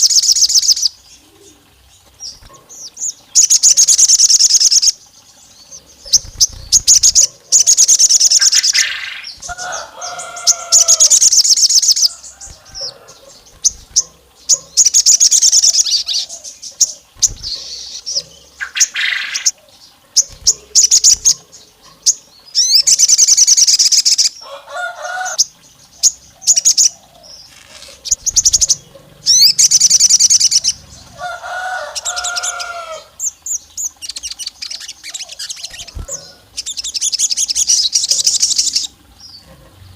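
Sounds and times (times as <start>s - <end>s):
high-pitched songbird trills: 0.0s - 24.4s, 25.3s - 31.2s, 31.8s - 39.4s
low bird warbling: 0.0s - 39.8s.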